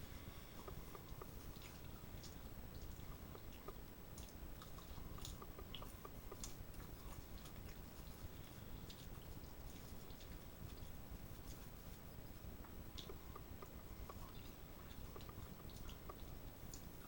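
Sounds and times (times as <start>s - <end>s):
person chewing food: 0.5s - 11.7s.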